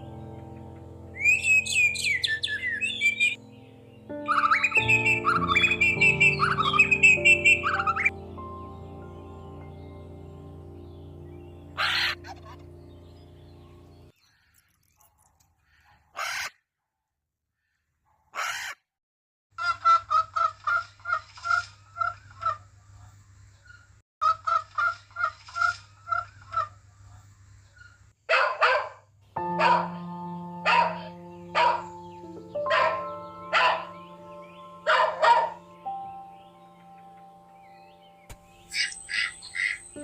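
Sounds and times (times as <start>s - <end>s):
background music: 0.0s - 14.1s, 29.4s - 40.0s
fowl calling: 4.2s - 8.1s, 11.8s - 12.8s.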